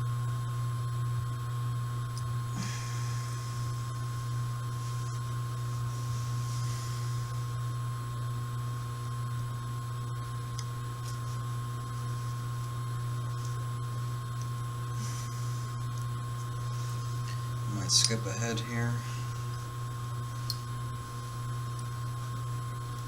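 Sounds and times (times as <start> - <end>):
laundry machine humming: 0.0 - 23.0
faint small clicks: 20.4 - 20.7.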